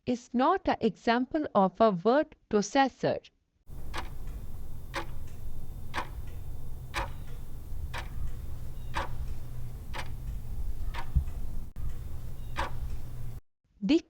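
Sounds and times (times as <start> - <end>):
clock ticking: 3.7 - 13.4
steady low hum: 3.7 - 13.4.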